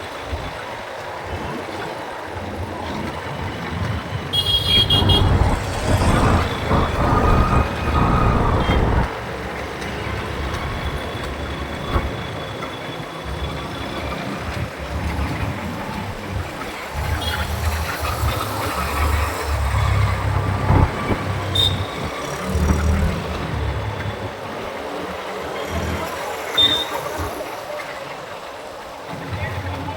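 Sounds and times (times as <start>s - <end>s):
road traffic rumble: 3.2s - 27.8s
vehicle horn toot: 4.3s - 9.0s.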